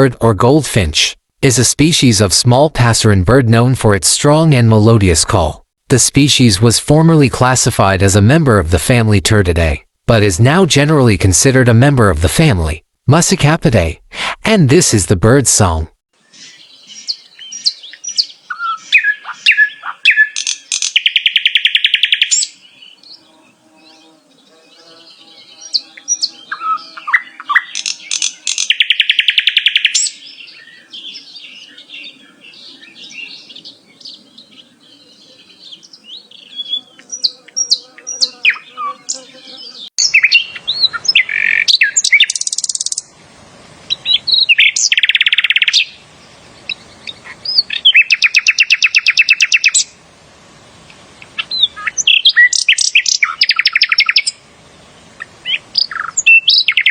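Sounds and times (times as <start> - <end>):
songbird singing chirps and trills: 16.2 - 43.1, 43.8 - 50.0, 50.8 - 56.9.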